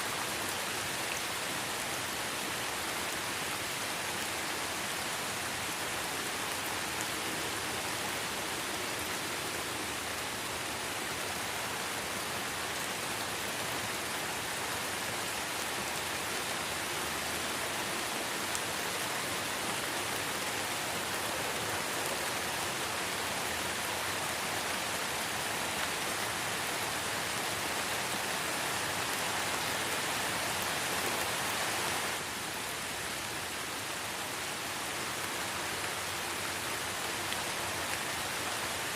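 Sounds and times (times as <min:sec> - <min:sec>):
light rain in forest: 0:00.0 - 0:38.9.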